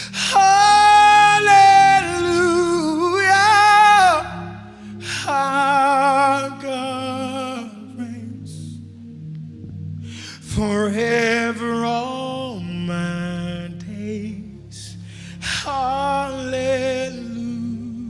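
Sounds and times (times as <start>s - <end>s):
person singing with vibrato: 0.0s - 8.8s
soft sustained instrumental chords: 0.0s - 18.0s.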